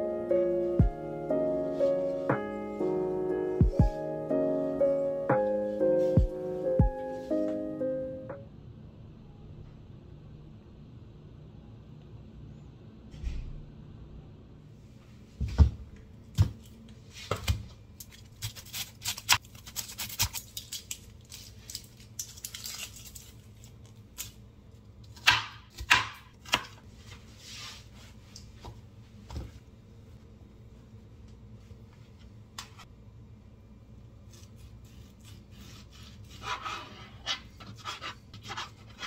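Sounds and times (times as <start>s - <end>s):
onion skin crackling and rustling: 17.9s - 24.4s.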